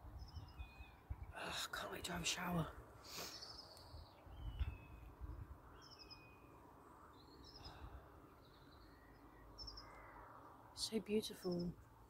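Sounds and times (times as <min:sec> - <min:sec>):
small birds chirping and whistling: 0:00.2 - 0:01.1, 0:03.1 - 0:10.2.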